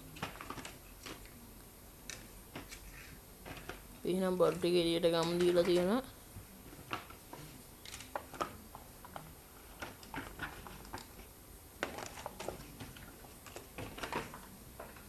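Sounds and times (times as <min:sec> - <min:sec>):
packaging rustling: 0:11.8 - 0:15.0.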